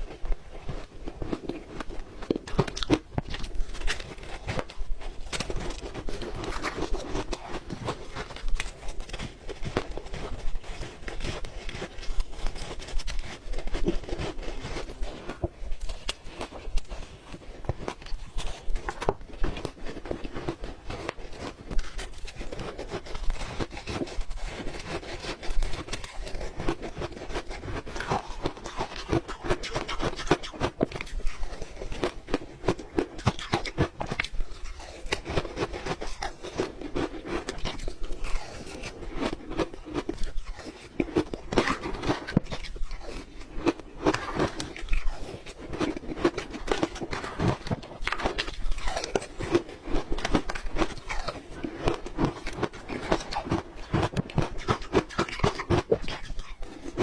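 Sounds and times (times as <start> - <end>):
ice being chewed: 0.0 - 57.0.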